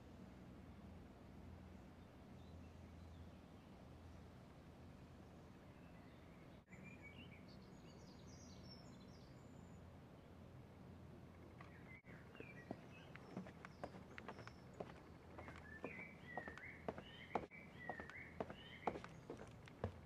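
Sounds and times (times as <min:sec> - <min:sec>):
faint small birds chirping: 0:05.2 - 0:20.0.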